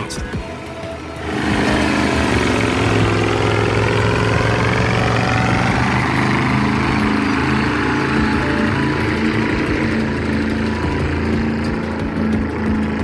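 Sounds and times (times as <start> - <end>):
truck diesel engine running hard: 0.0 - 13.0.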